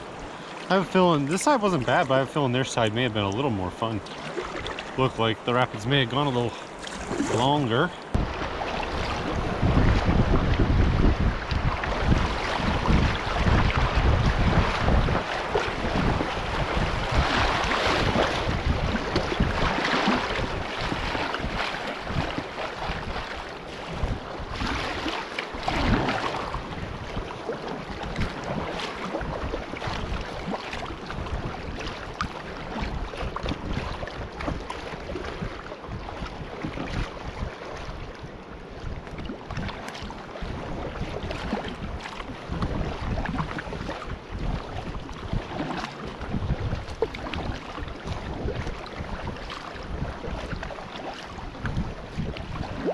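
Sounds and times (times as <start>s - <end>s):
river water rushing and splashing: 0.0s - 52.9s
wind buffeting microphone: 0.0s - 52.9s.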